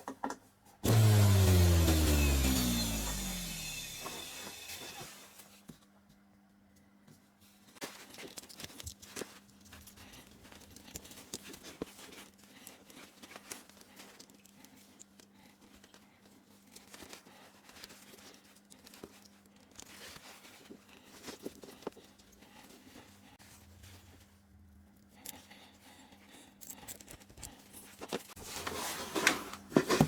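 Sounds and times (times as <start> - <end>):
small objects clicking and rustling: 7.8 - 22.4.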